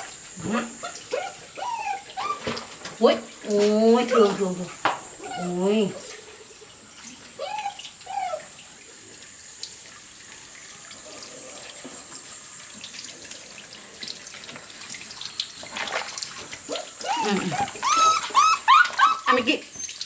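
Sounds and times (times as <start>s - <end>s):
water running and splashing: 0.0s - 20.0s
dog whining: 0.4s - 2.7s, 5.2s - 6.0s, 7.3s - 8.6s, 16.7s - 20.0s.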